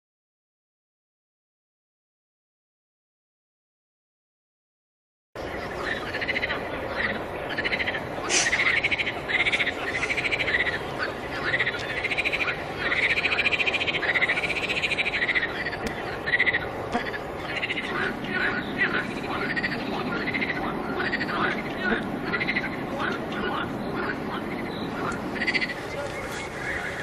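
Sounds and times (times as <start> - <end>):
frogs calling: 5.4 - 27.0
background hiss: 8.1 - 20.3.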